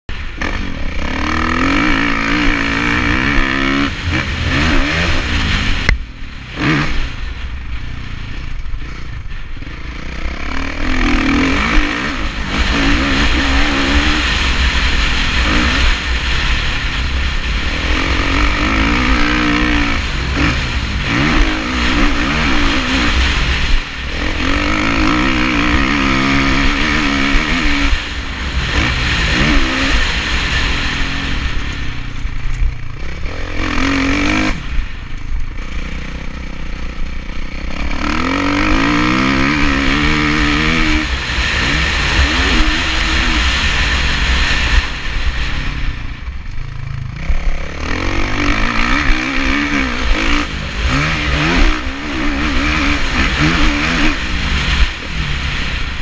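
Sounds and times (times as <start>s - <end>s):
motorcycle engine revving: 0.0s - 56.0s
wind rush on microphone: 0.1s - 35.8s, 47.2s - 56.0s.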